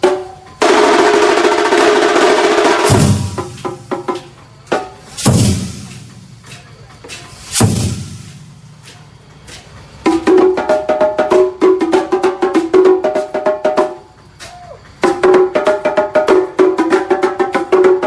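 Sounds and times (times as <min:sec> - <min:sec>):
heavy drum hits: 0:00.0 - 0:04.1, 0:05.1 - 0:06.4, 0:07.5 - 0:08.6
percussion ensemble drumming: 0:00.0 - 0:18.0.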